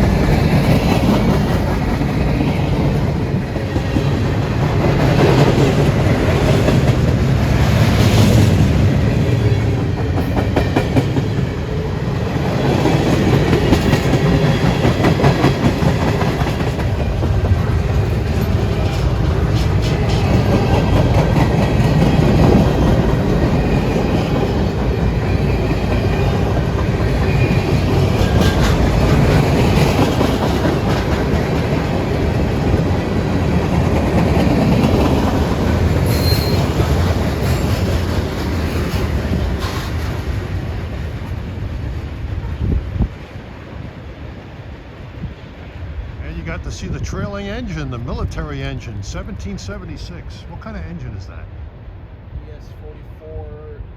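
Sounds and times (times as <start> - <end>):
wheels clacking over rail joints: 0.0 - 42.0
freight train rumbling past: 0.0 - 53.9.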